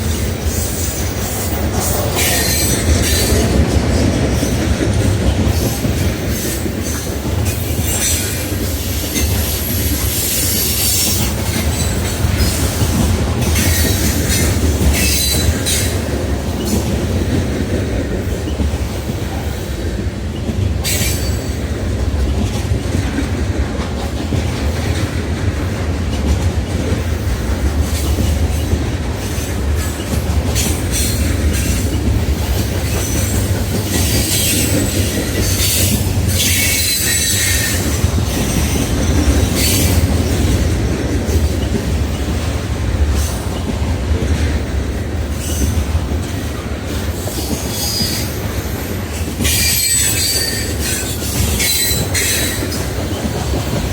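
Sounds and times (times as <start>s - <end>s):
train wheels squealing: 0.0s - 3.6s, 5.6s - 16.0s, 20.8s - 21.7s, 27.9s - 40.6s, 45.3s - 53.3s
freight train rumbling: 0.0s - 53.9s.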